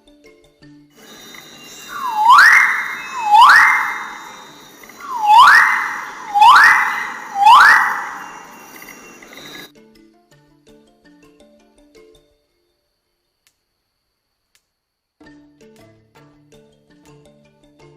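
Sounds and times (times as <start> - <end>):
bird whistled call: 1.0 - 9.7.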